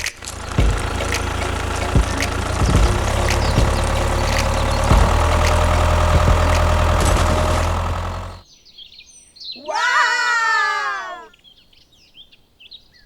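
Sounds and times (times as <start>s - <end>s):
clicks: 0.0s - 8.4s
sliding musical tone: 0.0s - 8.4s
small motor running: 0.0s - 8.4s.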